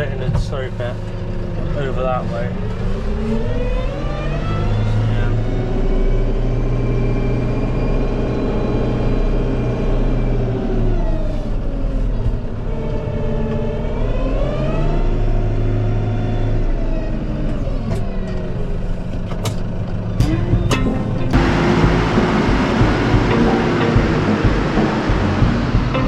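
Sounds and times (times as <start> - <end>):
tractor engine running: 16.6 - 26.0
sharp knocks: 19.3 - 26.0.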